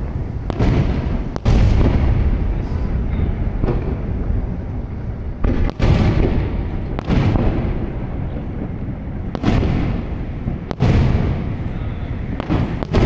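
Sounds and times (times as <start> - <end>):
continuous low rumble: 0.0 - 13.0
firework shells bursting: 5.3 - 13.0.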